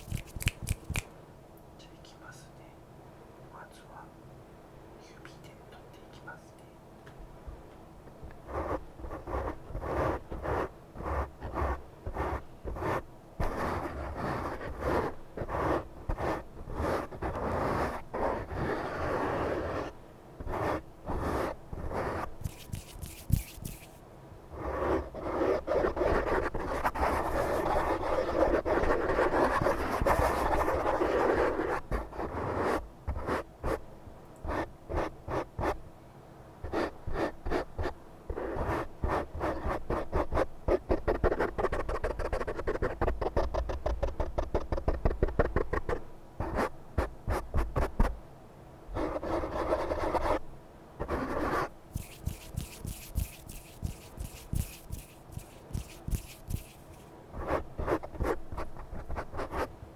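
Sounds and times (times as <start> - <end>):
close scratching and rubbing: 0.0 - 1.0, 8.4 - 24.0, 24.6 - 33.8, 36.7 - 48.1, 49.0 - 50.4, 51.0 - 59.7.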